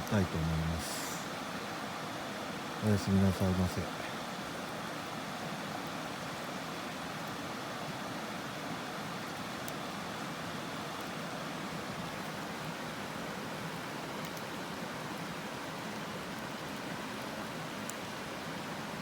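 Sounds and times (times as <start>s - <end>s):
fire crackling: 0.0s - 1.4s
campfire hissing: 0.0s - 19.0s.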